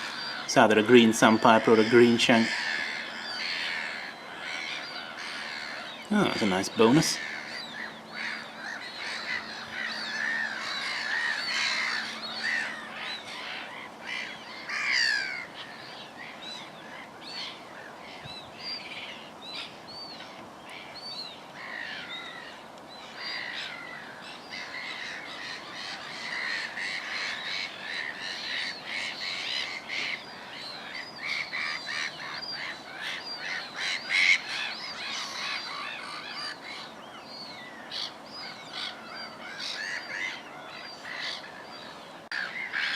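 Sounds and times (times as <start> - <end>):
wild birds chirping and whistling: 0.0 - 42.9.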